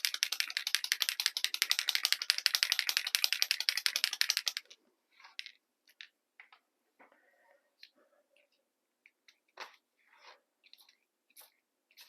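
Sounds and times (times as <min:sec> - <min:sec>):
faint rustles and taps: 0:07.8 - 0:12.0.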